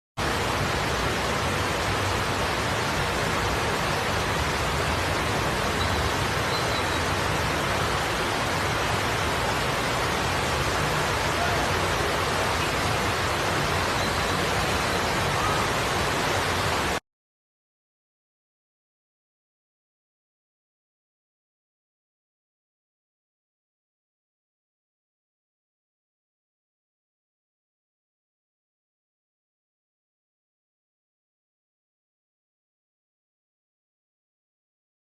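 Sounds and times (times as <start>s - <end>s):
rushing water: 0.2s - 17.0s.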